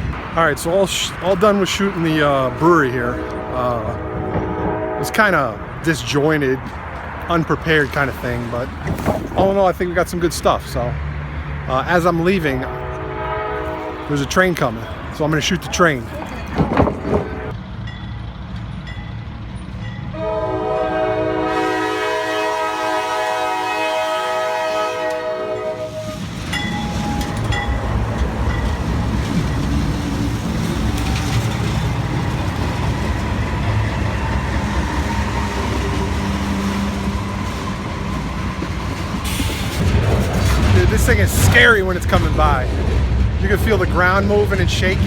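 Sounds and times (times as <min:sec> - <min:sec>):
train wheels rumbling and rattling: 0:00.0 - 0:45.0
train horn chord: 0:03.0 - 0:05.8, 0:12.7 - 0:14.3, 0:20.1 - 0:26.2.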